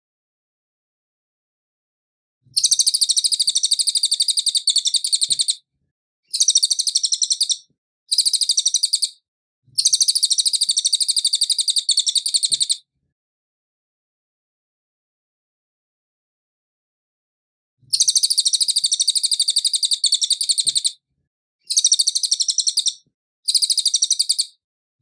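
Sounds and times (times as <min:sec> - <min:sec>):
bird high chirps: 0:02.5 - 0:05.6, 0:06.3 - 0:12.8, 0:17.9 - 0:21.0, 0:21.6 - 0:24.6.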